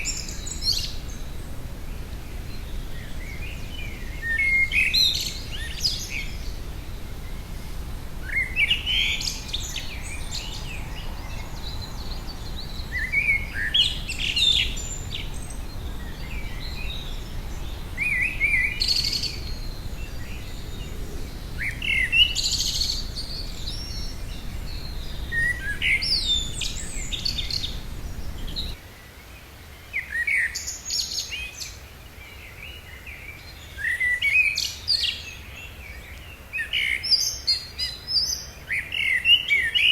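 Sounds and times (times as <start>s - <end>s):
low background rumble: 1.1s - 28.8s.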